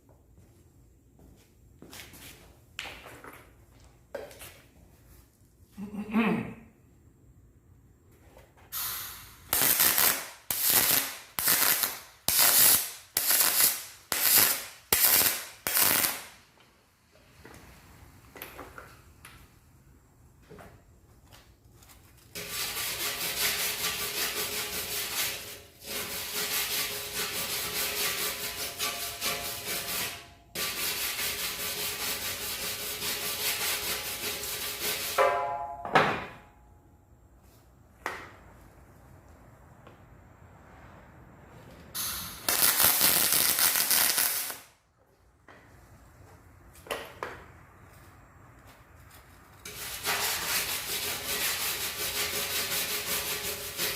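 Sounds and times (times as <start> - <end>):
hand scrubbing metal tank: 22.4 - 35.2, 49.7 - 53.9
thump: 35.2 - 36.5.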